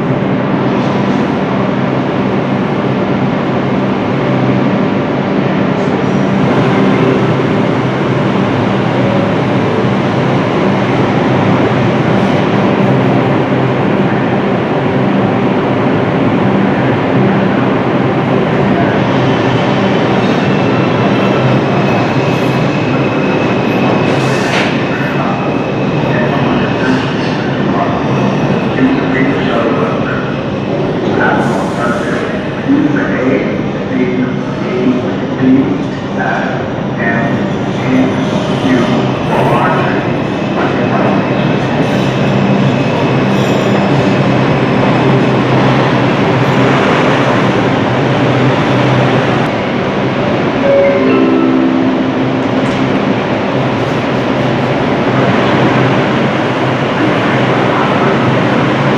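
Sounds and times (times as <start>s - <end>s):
train rumbling on rails: 0.0s - 58.9s
train wheels on rails: 18.4s - 27.5s.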